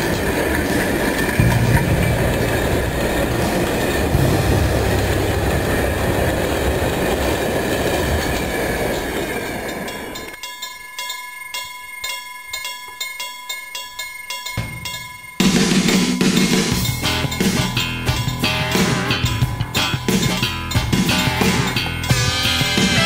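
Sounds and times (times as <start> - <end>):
railway wagons rumbling past: 0.0 - 10.4, 14.6 - 23.0
level crossing warning bell: 0.0 - 23.0.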